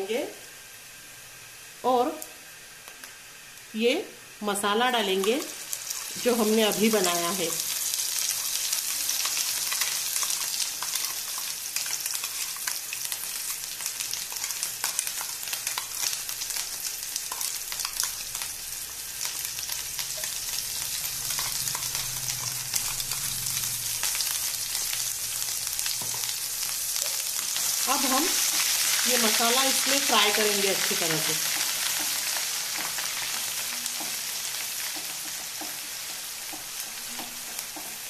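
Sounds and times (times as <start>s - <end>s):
paste sizzling in hot oil: 0.5s - 38.0s.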